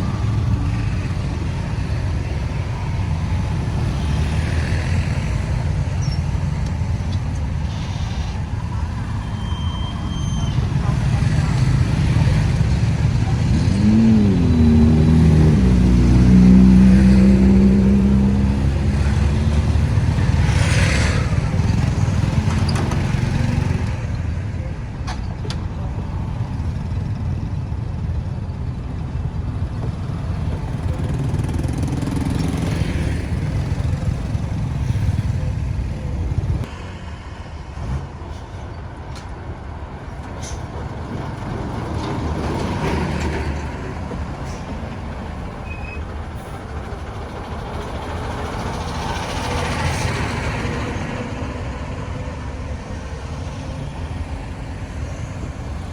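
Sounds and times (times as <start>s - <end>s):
traffic engines and tyre noise: 0.0s - 55.9s
vehicle engine revving past: 11.3s - 22.0s.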